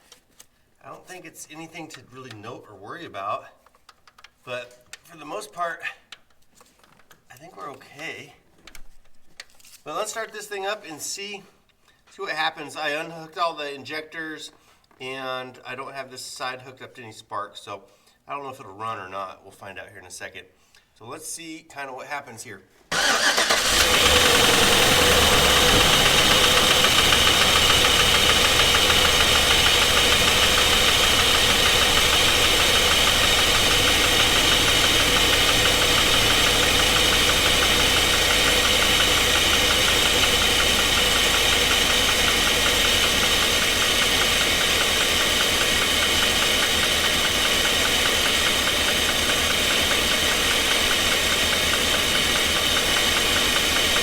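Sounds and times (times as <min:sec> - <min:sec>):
engine idling: 0:23.0 - 0:54.0
engine knock: 0:23.0 - 0:54.0
valvetrain ticking: 0:23.0 - 0:54.0.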